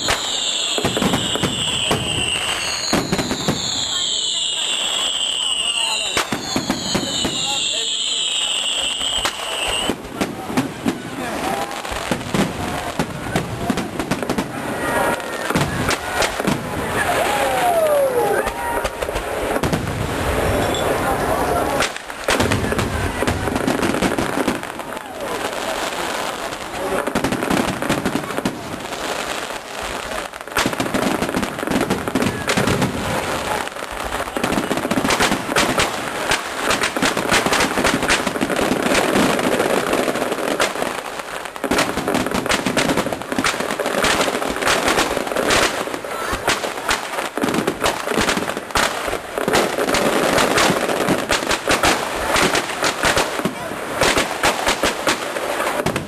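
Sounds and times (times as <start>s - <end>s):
fireworks cracks and bangs: 0.0s - 56.0s.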